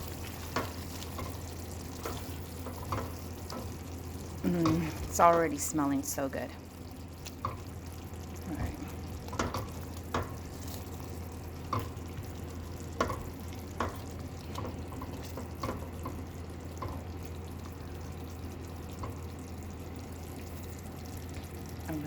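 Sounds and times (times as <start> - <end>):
spoon scraping a pan: 0.0 - 3.8
faint sizzle: 0.0 - 22.0.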